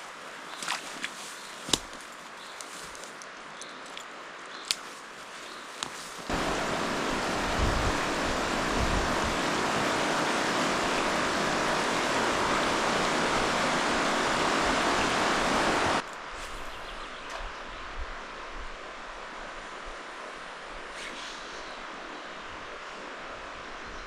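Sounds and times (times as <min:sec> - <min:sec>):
river rapids rushing: 0:06.3 - 0:16.0.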